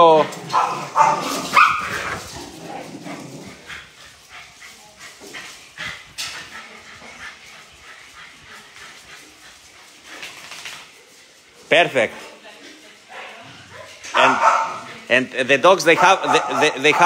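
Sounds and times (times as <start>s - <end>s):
dogs barking: 0.4s - 2.3s, 13.1s - 17.0s.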